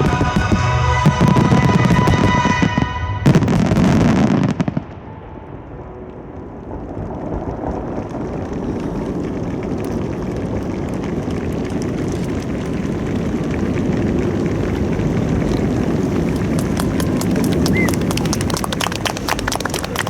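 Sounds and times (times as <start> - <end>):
crowd applauding and cheering: 8.3 - 20.0
individual claps: 9.7 - 20.0.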